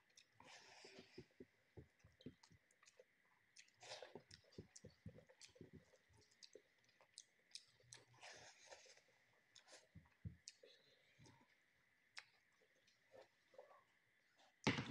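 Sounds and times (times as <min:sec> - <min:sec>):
chewing with wet mouth clicks: 0:00.1 - 0:00.4, 0:02.1 - 0:11.4, 0:12.1 - 0:13.3.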